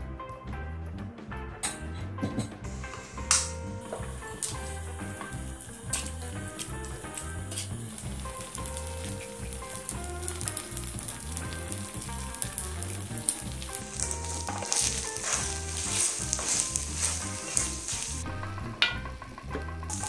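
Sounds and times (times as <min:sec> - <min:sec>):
background music with low beat: 0:00.0 - 0:20.0
rice sizzling in a hot pan: 0:02.8 - 0:18.2.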